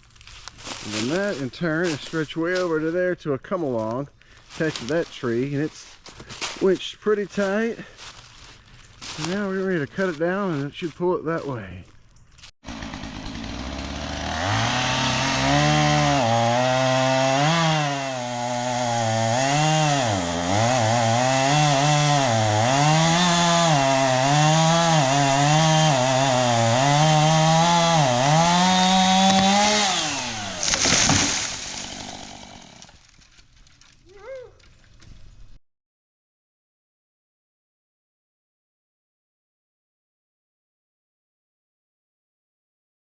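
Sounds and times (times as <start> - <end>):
chainsaw cutting into tree: 12.6 - 33.0.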